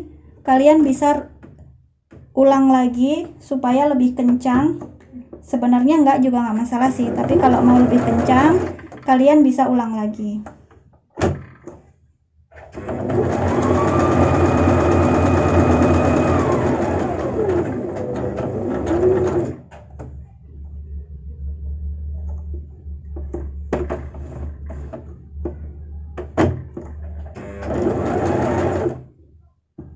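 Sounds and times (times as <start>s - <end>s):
sewing machine motor whining: 12.8s - 19.6s, 27.4s - 29.0s
low hum: 19.7s - 27.4s.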